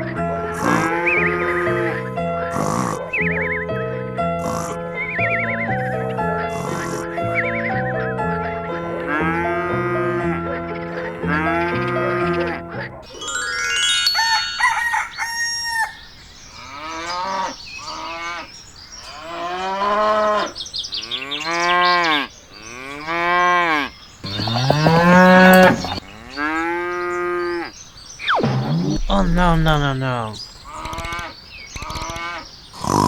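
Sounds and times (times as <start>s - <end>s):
cow mooing: 0.6s - 2.0s, 21.1s - 27.7s
crowing call: 13.2s - 27.7s.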